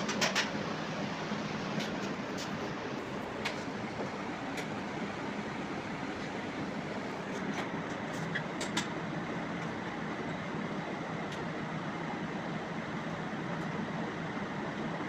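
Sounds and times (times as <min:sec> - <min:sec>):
machine running with low hum: 0:00.0 - 0:15.0.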